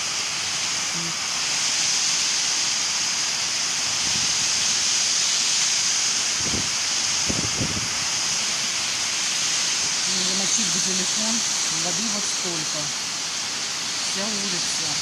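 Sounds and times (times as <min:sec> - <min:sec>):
heavy rain pouring: 0:00.0 - 0:15.0
strong wind: 0:00.0 - 0:15.0.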